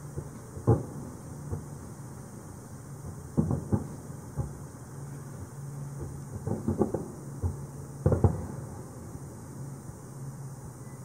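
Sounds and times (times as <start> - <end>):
distant fireworks booming: 0.0 - 2.1, 2.9 - 4.8, 5.4 - 9.2.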